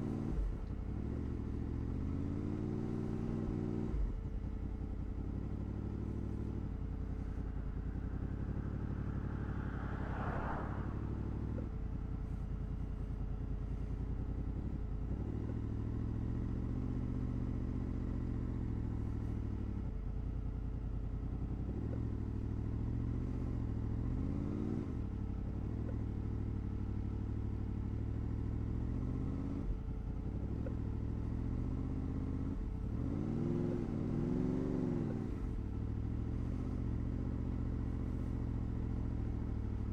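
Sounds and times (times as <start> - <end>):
motorcycle engine revving: 0.9 - 12.1
rising whoosh: 7.0 - 12.0.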